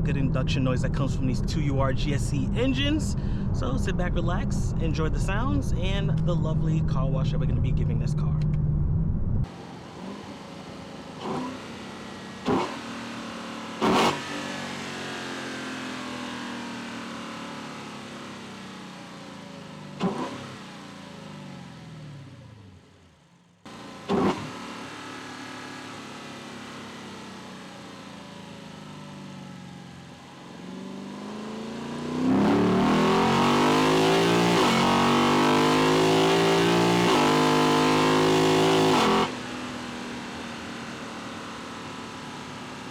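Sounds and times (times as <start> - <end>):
car engine intake roar: 9.5 - 22.9, 23.7 - 42.9.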